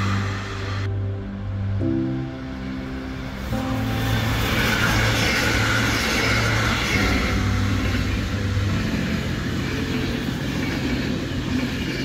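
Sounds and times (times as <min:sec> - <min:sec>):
train wheels rushing on rail: 0:00.0 - 0:00.9, 0:03.4 - 0:12.0.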